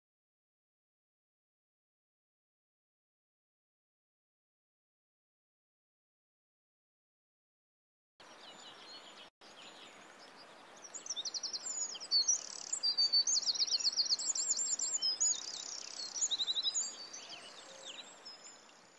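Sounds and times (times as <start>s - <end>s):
steady outdoor hiss: 8.2s - 18.9s
songbird trilling: 8.3s - 18.9s.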